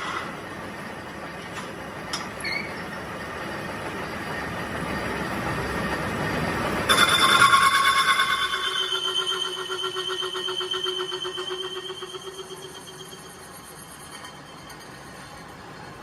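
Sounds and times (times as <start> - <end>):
metalworking machinery rumbling: 0.0 - 16.0
pulsing metallic squeal: 2.4 - 3.0, 6.3 - 16.0.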